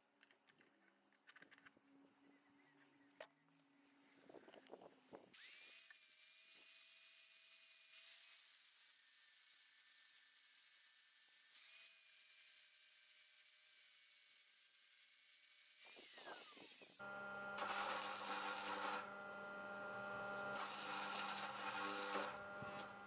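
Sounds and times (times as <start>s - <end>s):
electric grinder grinding steel: 5.4s - 23.0s.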